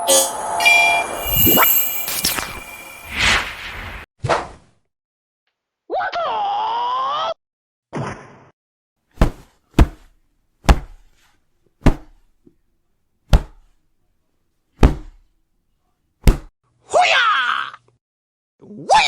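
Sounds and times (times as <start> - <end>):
sharp hit whacks with thuds: 13.3 - 13.6, 14.8 - 15.2, 16.2 - 16.5.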